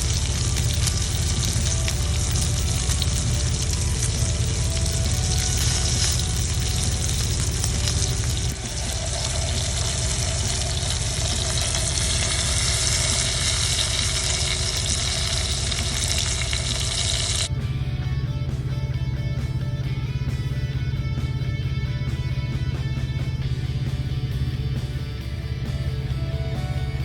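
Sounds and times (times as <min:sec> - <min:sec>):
guitar music: 0:00.0 - 0:16.4, 0:17.5 - 0:27.0
steak sizzling in a pan: 0:00.0 - 0:17.5.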